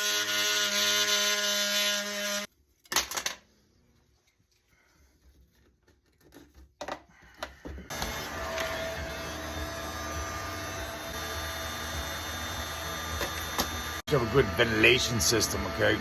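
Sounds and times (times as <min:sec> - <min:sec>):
oscillating multi-tool cutting: 0:07.9 - 0:16.0.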